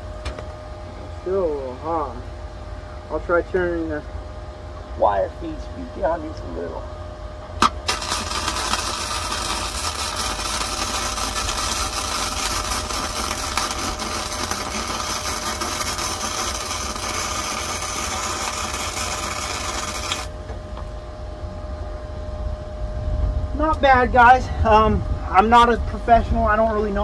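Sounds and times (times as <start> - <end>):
welding arc crackling sizzle: 7.6 - 20.5.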